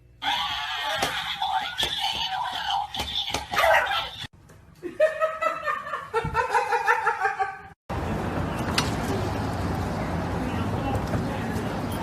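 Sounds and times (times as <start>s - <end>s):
person laughing: 4.8s - 7.8s.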